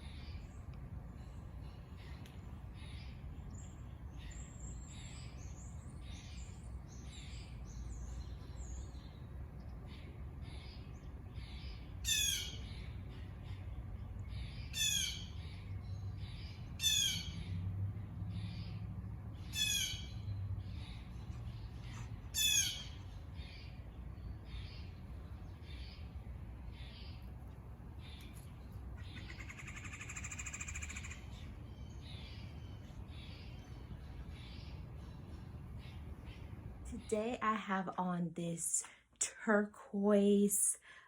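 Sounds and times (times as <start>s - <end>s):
birds chirping and twittering: 0.0s - 39.0s
bird loud harsh call: 22.3s - 23.7s, 29.0s - 31.4s.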